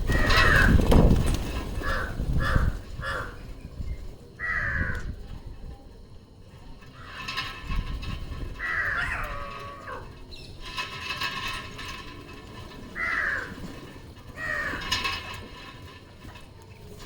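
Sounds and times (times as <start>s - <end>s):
parrots squawking: 8.6s - 10.1s.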